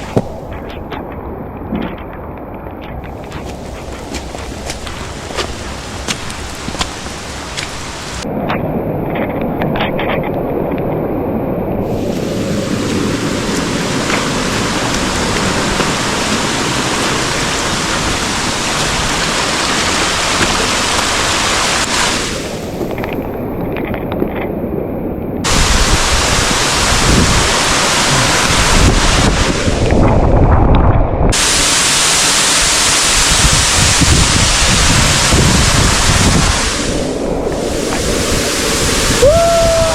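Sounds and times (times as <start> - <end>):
fast-flowing stream rushing: 11.9 - 22.8, 25.5 - 29.8, 31.4 - 39.9
wind buffeting microphone: 25.4 - 31.5, 33.1 - 39.9.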